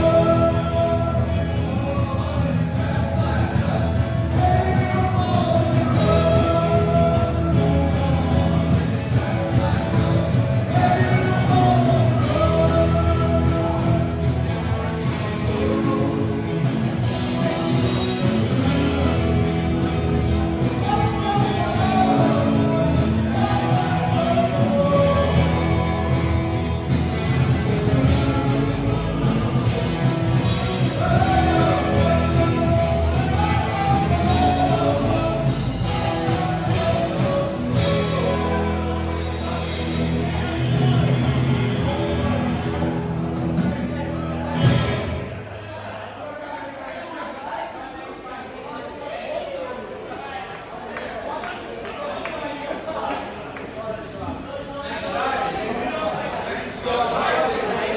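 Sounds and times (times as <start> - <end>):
person singing: 0.0 - 42.9
live rock band playing: 0.0 - 45.7.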